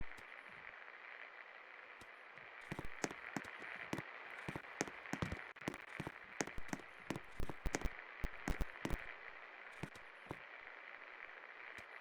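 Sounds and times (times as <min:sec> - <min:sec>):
sharp clicks and ticks: 0:02.7 - 0:03.6, 0:04.5 - 0:09.0.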